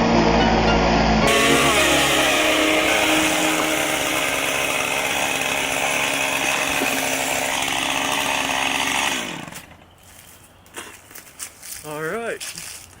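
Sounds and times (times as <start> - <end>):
chainsaw cutting wood: 1.3 - 9.9.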